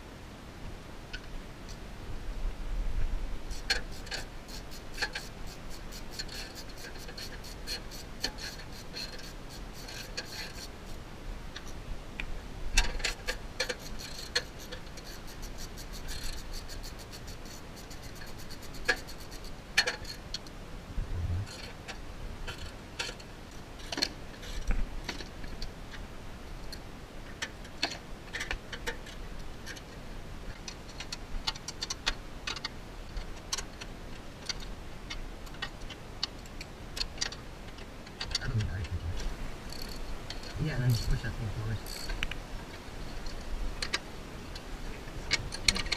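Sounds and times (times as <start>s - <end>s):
ratchet wrench clicking: 3.5s - 10.7s, 13.0s - 20.2s, 39.7s - 40.0s, 41.8s - 42.2s.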